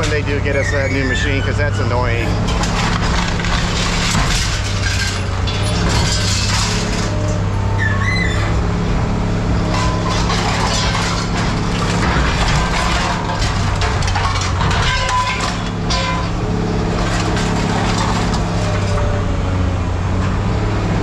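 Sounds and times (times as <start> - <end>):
scrap metal clanking and scraping: 0.0 - 19.4
diesel engine running: 0.0 - 21.0
brief squeal: 0.5 - 2.4, 7.6 - 8.5.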